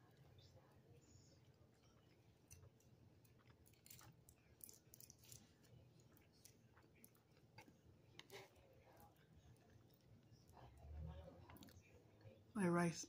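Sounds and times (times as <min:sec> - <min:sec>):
person chewing: 0:01.5 - 0:10.7.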